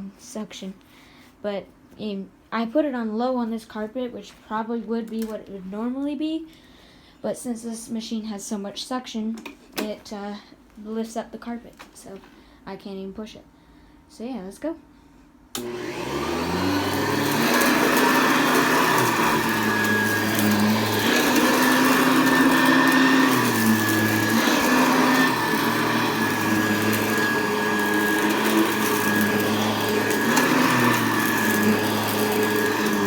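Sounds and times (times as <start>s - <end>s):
upright vacuum cleaner running: 15.6s - 33.0s.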